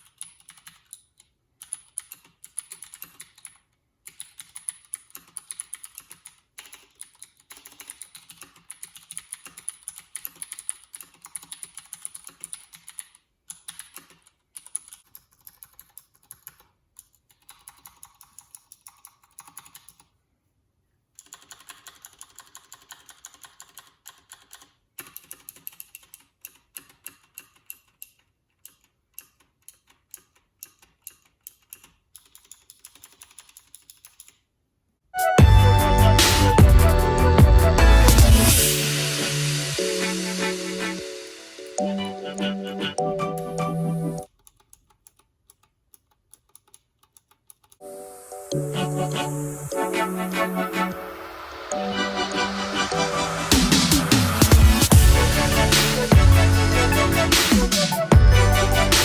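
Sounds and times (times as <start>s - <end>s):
mechanical keyboard typing: 0.0s - 20.1s, 21.2s - 34.4s, 44.2s - 47.8s.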